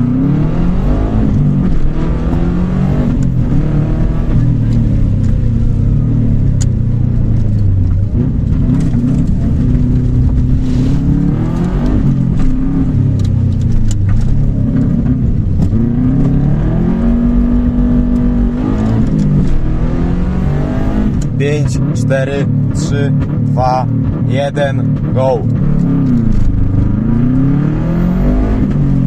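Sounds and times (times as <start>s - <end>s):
rally car engine accelerating: 0.0s - 29.0s.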